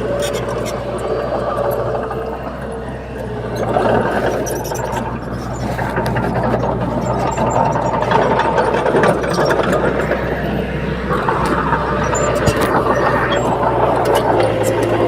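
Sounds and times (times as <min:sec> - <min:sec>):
bulldozer diesel engine running: 0:00.0 - 0:15.0
metal clanks and clatter: 0:03.5 - 0:15.0.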